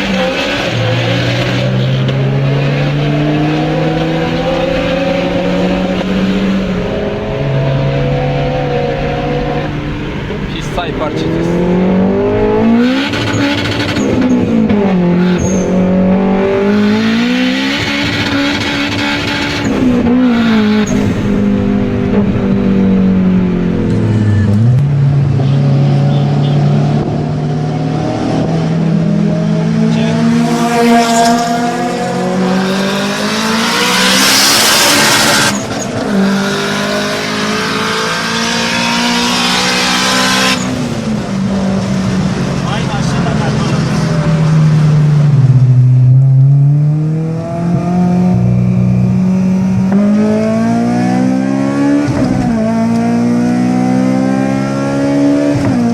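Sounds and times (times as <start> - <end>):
car engine revving hard: 0.0 - 55.9
loud rush of noise: 16.4 - 46.4.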